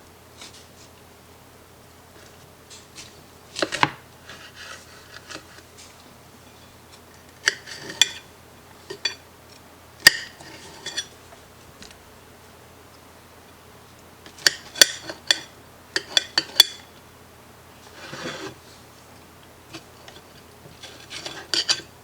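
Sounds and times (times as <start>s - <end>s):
utensils and dishes clinking: 20.0s - 21.9s.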